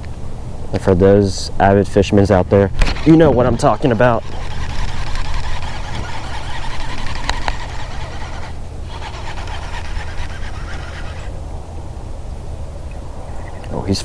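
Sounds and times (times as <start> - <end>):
wind buffeting microphone: 1.8 - 14.0
sharp clicks: 2.8 - 11.1.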